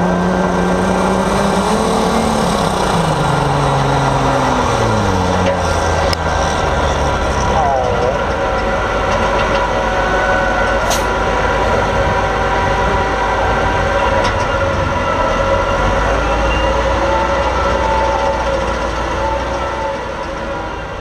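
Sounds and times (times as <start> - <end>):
tractor engine whining and rumbling: 0.0 - 21.0.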